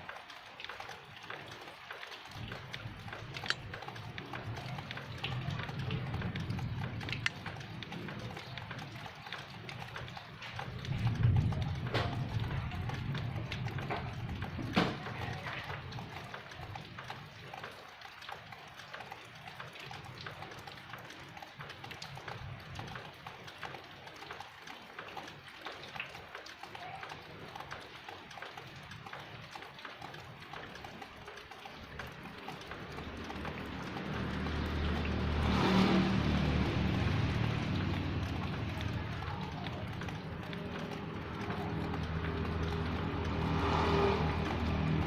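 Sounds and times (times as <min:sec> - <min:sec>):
street ambience: 0:00.0 - 0:45.0
small clicks and knocks: 0:00.6 - 0:35.1
vehicle engine passing by: 0:32.2 - 0:45.0.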